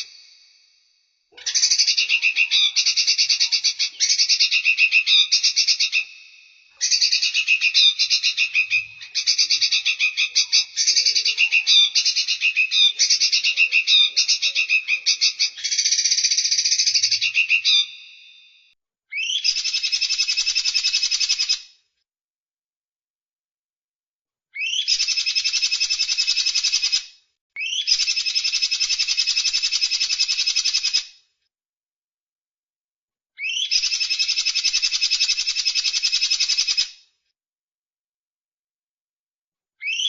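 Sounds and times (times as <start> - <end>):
songbird singing buzzy trills: 1.4 - 18.2.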